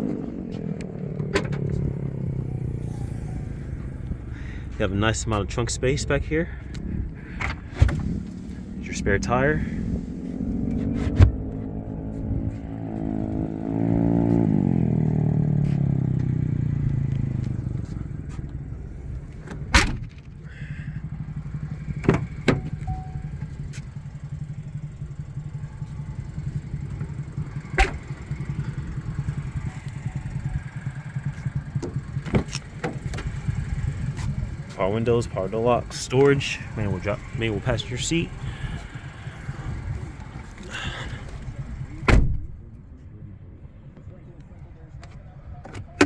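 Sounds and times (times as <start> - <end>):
engine revving: 0.0 - 42.4
car engine idling: 0.0 - 46.0
liftgate slamming shut: 19.4 - 20.3, 27.7 - 28.1, 42.0 - 42.6.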